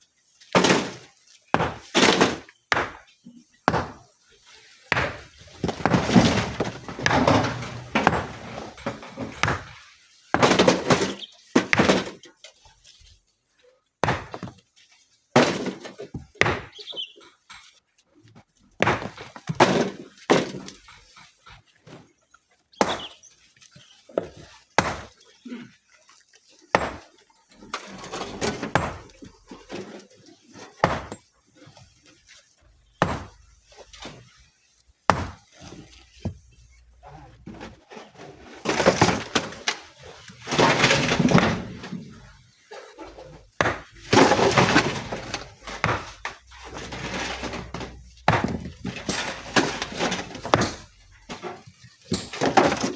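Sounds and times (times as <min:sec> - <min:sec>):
stones thudding and cracking: 0:00.6 - 0:04.1, 0:04.8 - 0:12.2, 0:14.0 - 0:14.6, 0:15.4 - 0:17.1, 0:18.8 - 0:21.0, 0:22.7 - 0:23.2, 0:24.2 - 0:25.1, 0:26.7 - 0:30.0, 0:30.8 - 0:31.3, 0:32.7 - 0:34.5, 0:35.1 - 0:36.7, 0:38.4 - 0:42.4, 0:43.0 - 0:52.9.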